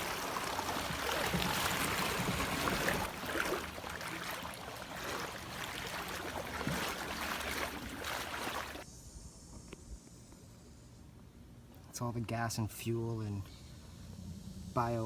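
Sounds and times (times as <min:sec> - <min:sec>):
floodwater sloshing and splashing: 0:00.0 - 0:08.8.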